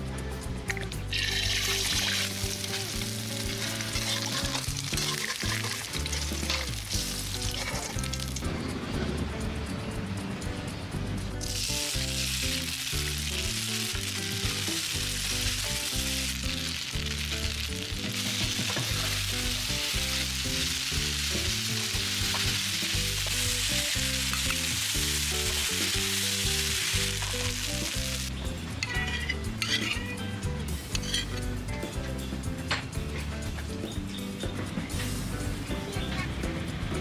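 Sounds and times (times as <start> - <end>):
noodles sizzling in hot oil: 1.1 - 8.4, 11.4 - 28.4
metal ladle and spatula stirring: 1.2 - 8.4, 28.8 - 30.1.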